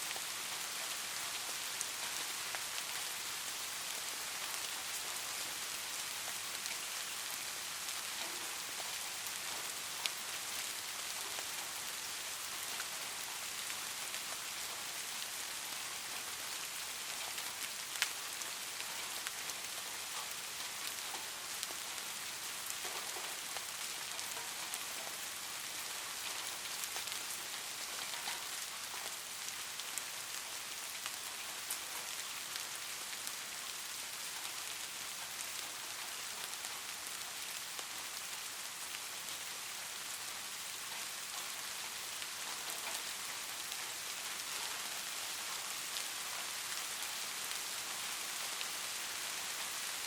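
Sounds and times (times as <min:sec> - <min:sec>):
light rain falling: 0:00.0 - 0:50.0
raindrop ticks: 0:07.9 - 0:11.8, 0:17.0 - 0:21.9, 0:22.6 - 0:38.3, 0:40.6 - 0:49.8.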